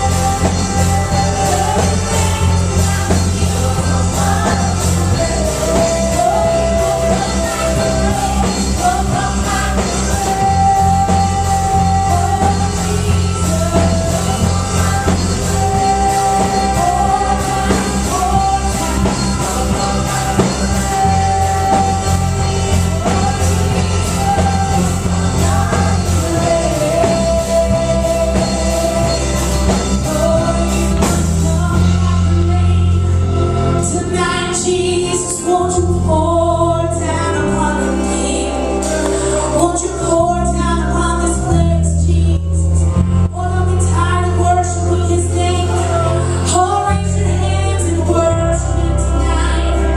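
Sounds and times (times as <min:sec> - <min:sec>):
drum and cymbal beat: 0:00.0 - 0:36.0
bass notes: 0:00.0 - 0:49.9
person singing: 0:00.0 - 0:49.9.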